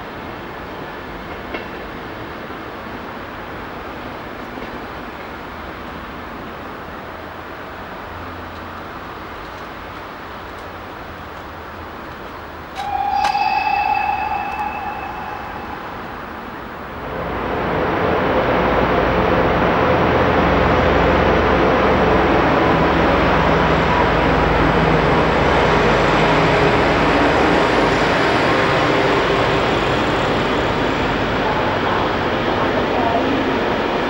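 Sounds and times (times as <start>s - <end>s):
train rumbling through station: 0.0s - 34.0s
low hum: 12.8s - 17.1s.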